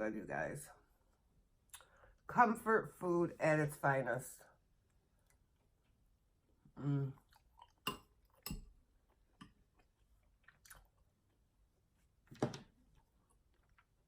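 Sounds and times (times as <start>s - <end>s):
person chewing food: 4.8s - 12.1s, 12.8s - 14.0s
person humming: 6.8s - 7.2s.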